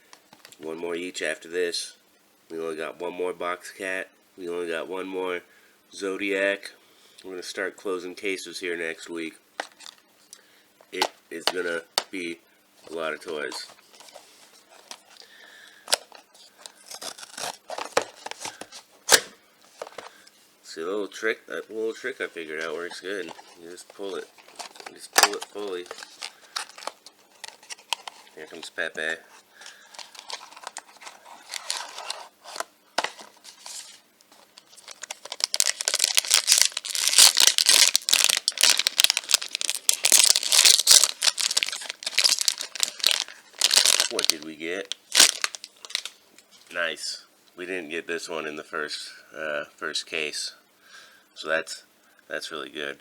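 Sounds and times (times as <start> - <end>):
packaging rustling and crinkling: 9.6 - 10.0, 12.8 - 20.3, 22.0 - 28.7, 29.3 - 46.2
packaging tearing: 15.8 - 20.1, 22.6 - 28.6, 29.6 - 46.2.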